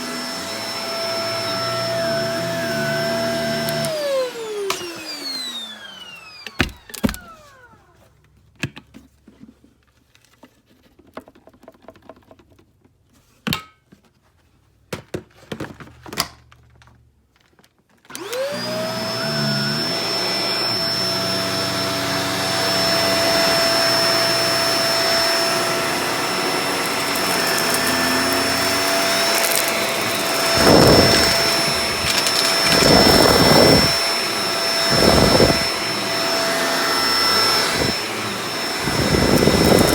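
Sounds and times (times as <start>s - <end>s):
vacuum cleaner motor: 0.0s - 8.1s, 18.1s - 39.9s.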